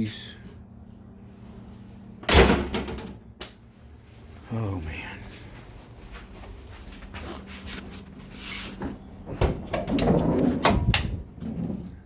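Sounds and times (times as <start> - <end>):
scraping and creaking: 6.5 - 12.0.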